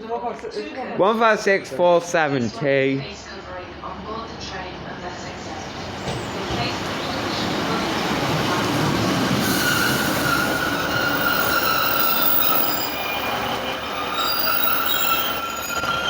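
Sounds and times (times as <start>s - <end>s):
train rumble: 3.0s - 16.0s
high squealing brake tones: 9.3s - 16.0s.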